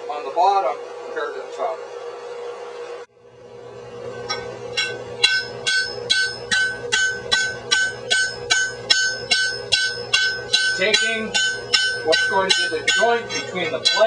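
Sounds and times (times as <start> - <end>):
hammer striking iron on anvil: 4.3 - 14.0.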